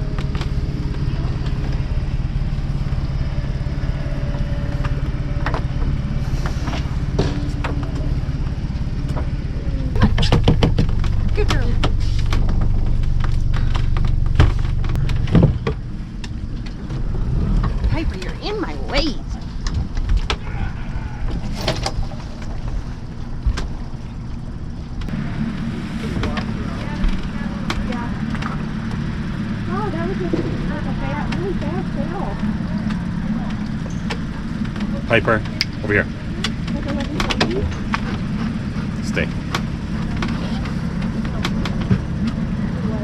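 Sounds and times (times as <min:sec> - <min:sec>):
boat engine idling: 0:00.0 - 0:43.0.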